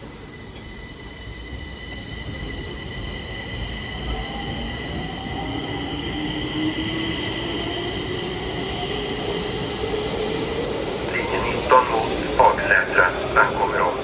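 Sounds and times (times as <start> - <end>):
metro train running: 0.0 - 14.0
high-pitched whines: 11.1 - 14.0.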